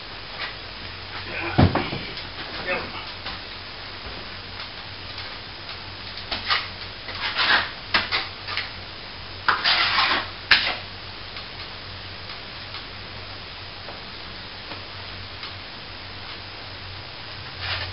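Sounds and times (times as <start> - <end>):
plastering tools scraping plaster: 6.3 - 8.7, 9.5 - 10.8, 17.6 - 17.9.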